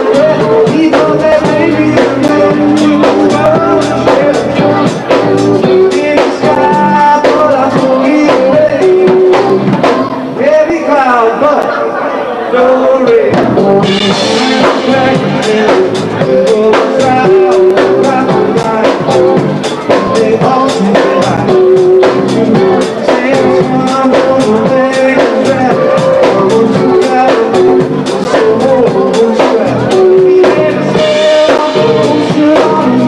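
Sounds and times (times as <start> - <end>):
drum kit beat: 0.0 - 10.4, 13.1 - 33.0
band music: 0.0 - 33.0
person singing: 0.0 - 33.0.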